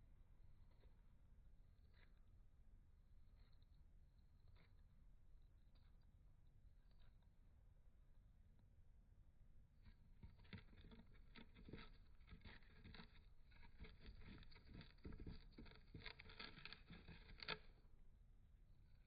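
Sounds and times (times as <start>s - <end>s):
bird nibbling cardboard tube: 9.8s - 17.9s.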